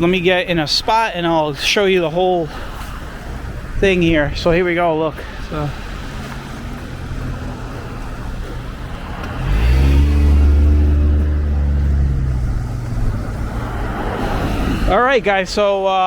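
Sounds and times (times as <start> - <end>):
street traffic: 0.0 - 16.0
vehicle engine passing close: 5.7 - 15.0.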